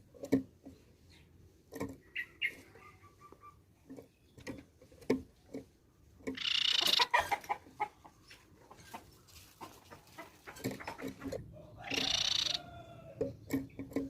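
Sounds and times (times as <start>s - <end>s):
bird harsh chattering call: 6.4s - 7.2s, 11.8s - 12.6s.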